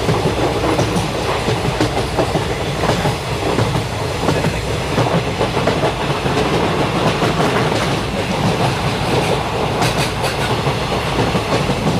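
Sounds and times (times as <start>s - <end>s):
passenger train rumbling: 0.0s - 11.9s.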